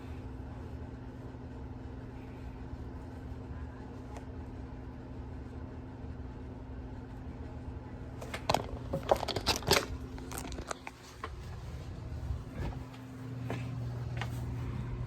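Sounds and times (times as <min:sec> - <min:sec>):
steady low hum: 0:00.0 - 0:15.0
rustling and clicking handling noise: 0:08.2 - 0:14.6.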